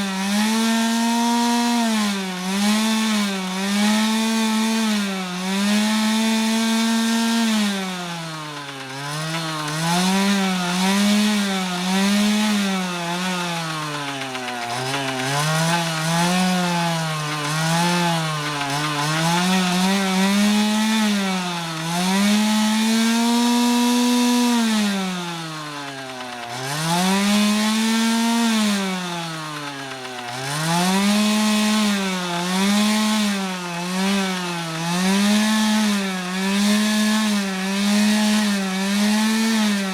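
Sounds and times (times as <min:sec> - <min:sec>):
dirt bike engine revving: 0:05.5 - 0:38.2.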